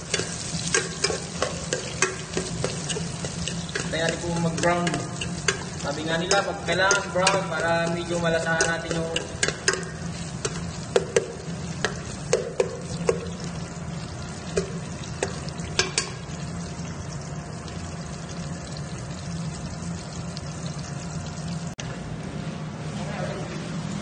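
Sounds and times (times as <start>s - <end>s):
spoon clinking against pot: 0.0s - 13.2s
onions sizzling in hot oil: 0.0s - 21.8s.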